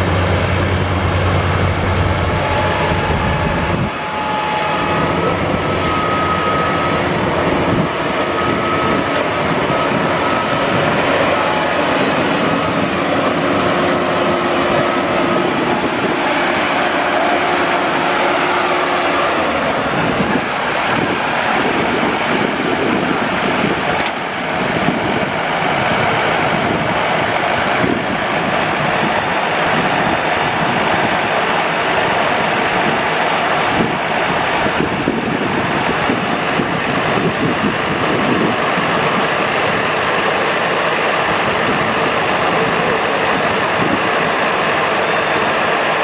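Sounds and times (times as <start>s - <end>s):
steady machine whine: 0.0s - 28.1s
combine harvester roaring: 0.0s - 28.5s, 29.1s - 46.0s.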